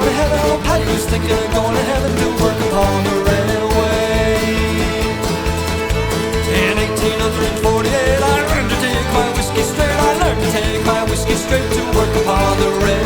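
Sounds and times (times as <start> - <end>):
driving beat: 0.0 - 13.0
fiddle: 0.0 - 13.0
folk band playing: 0.0 - 13.0
guitar: 0.0 - 13.0.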